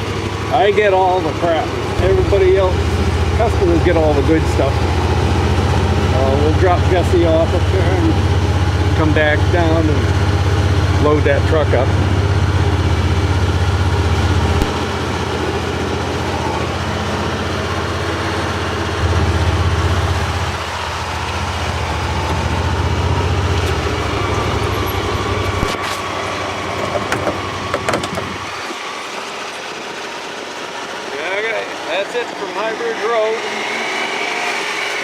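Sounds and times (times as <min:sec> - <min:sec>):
vehicle engine rumbling: 0:00.0 - 0:33.4
clicks: 0:14.5 - 0:14.9.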